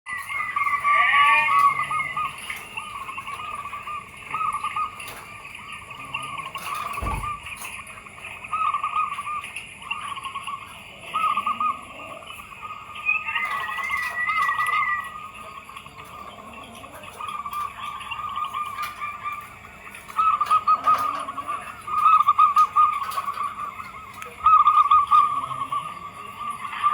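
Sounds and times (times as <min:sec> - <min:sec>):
higher bird trill: 0:00.1 - 0:26.9
doves cooing: 0:00.2 - 0:26.9
low thump: 0:07.0 - 0:07.5.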